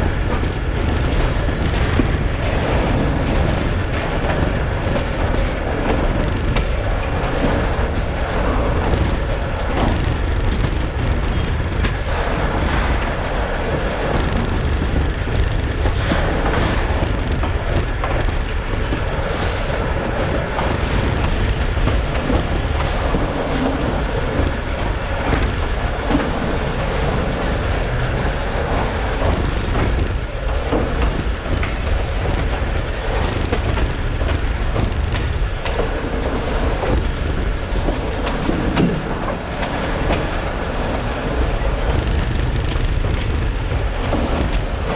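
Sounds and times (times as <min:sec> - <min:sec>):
train rumbling on rails: 0:00.0 - 0:44.9.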